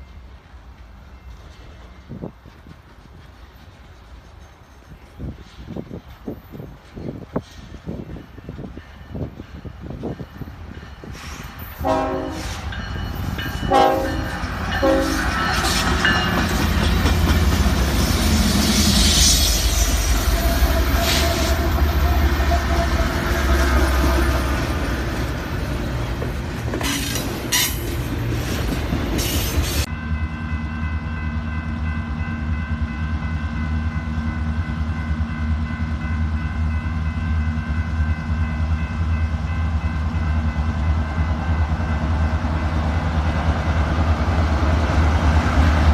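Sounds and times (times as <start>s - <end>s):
wheels clattering on rails: 0.0s - 11.8s, 12.4s - 18.4s, 23.5s - 29.9s
locomotive horn: 11.8s - 12.6s, 13.7s - 15.4s, 19.7s - 24.0s.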